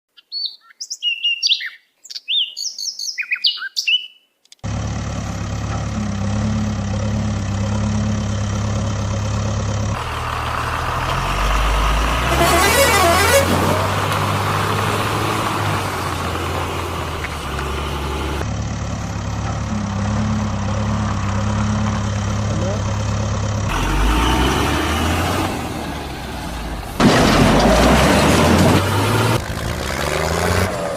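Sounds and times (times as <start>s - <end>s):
birds chirping: 0.1s - 4.6s
vehicle engine hum: 4.6s - 30.9s.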